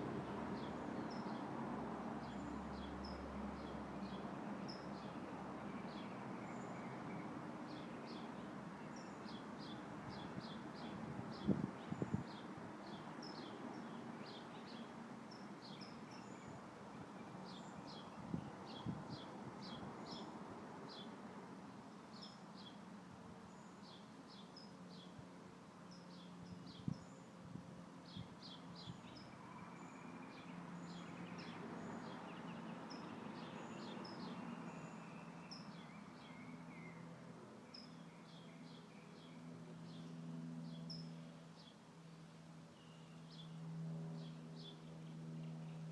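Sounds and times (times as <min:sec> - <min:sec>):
wind rustling leaves: 0:09.9 - 0:14.6, 0:15.3 - 0:23.5
small birds chirping: 0:28.1 - 0:41.8.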